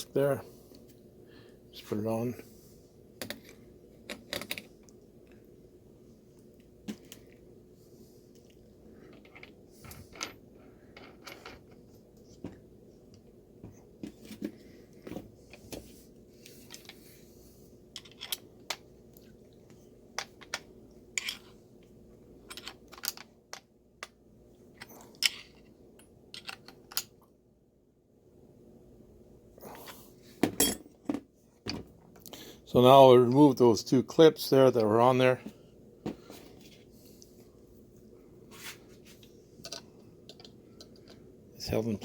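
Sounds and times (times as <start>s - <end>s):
faint steady hum: 0.0s - 42.0s
metal parts clicking and clinking: 17.9s - 18.8s, 20.2s - 21.5s, 22.4s - 23.6s, 26.3s - 27.1s, 39.6s - 41.2s.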